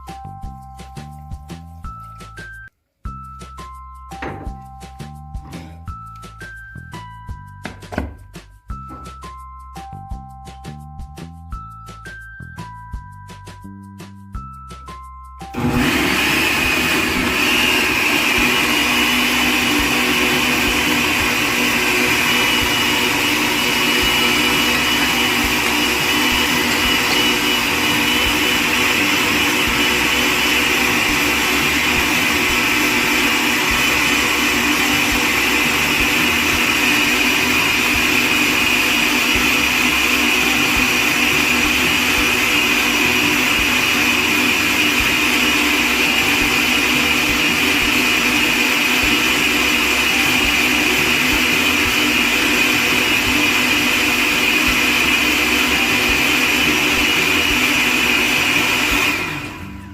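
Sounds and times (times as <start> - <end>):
juicer motor whining: 15.5 - 59.9.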